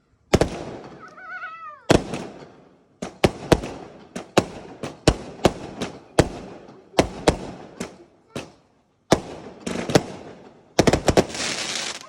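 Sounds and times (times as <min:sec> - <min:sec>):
fireworks bangs with echo: 0:00.3 - 0:01.1, 0:01.9 - 0:12.0.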